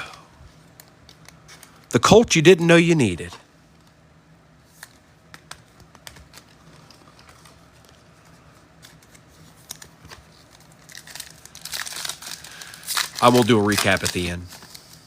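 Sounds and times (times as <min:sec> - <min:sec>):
card packs rustling: 0:04.7 - 0:15.0.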